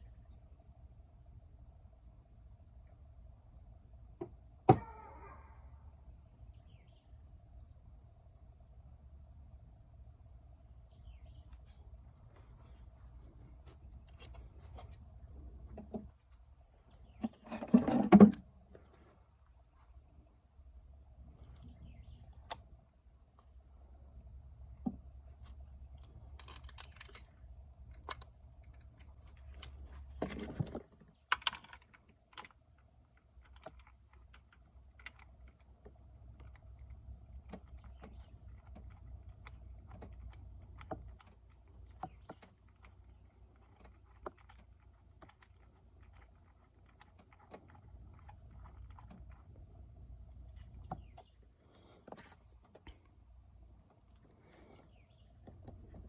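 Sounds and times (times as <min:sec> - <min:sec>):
steady low hum: 0:00.0 - 0:56.0
hand tools clicking and clinking: 0:26.4 - 0:27.3, 0:31.3 - 0:49.5.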